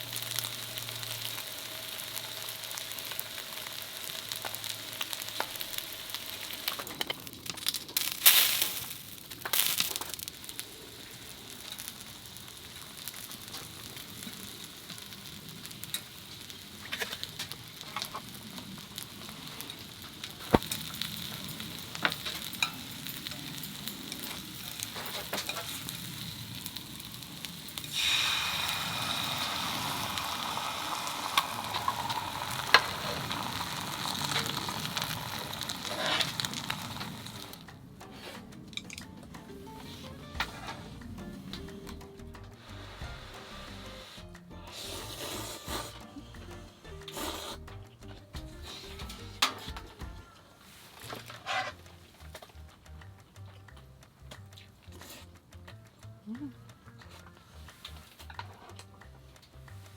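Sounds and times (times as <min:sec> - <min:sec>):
food sizzling in frying pan: 0:00.0 - 0:53.8.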